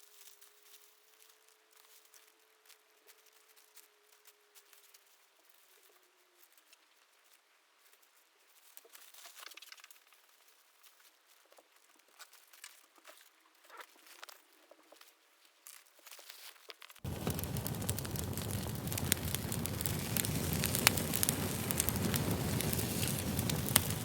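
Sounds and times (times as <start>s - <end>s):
small fire crackling: 16.8s - 24.0s
fire roaring: 17.1s - 24.0s.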